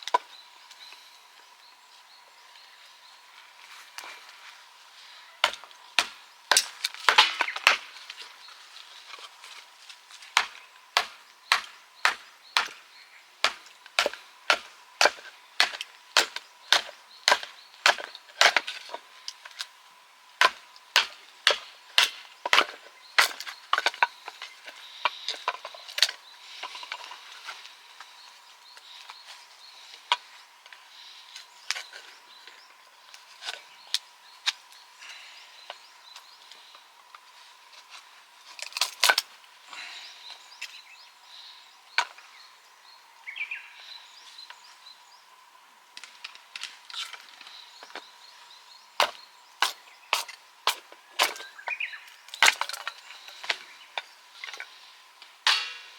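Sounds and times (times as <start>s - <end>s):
axe chopping firewood: 5.4s - 8.0s, 10.3s - 19.0s, 20.4s - 26.1s, 49.0s - 51.5s, 52.3s - 53.6s, 55.4s - 55.9s.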